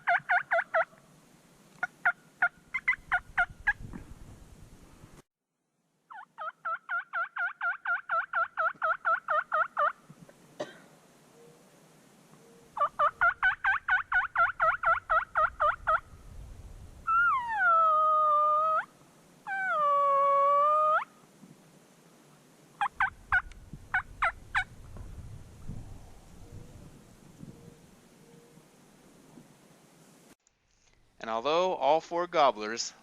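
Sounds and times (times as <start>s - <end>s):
turkey long drawn-out calls: 0.0s - 1.0s, 1.8s - 3.8s, 6.1s - 10.0s, 12.4s - 16.1s, 17.1s - 21.2s, 22.8s - 24.7s
turkey yelping: 0.0s - 1.0s, 1.8s - 3.8s, 6.1s - 10.0s, 12.8s - 16.1s, 17.1s - 18.9s, 19.5s - 21.1s, 22.8s - 24.7s.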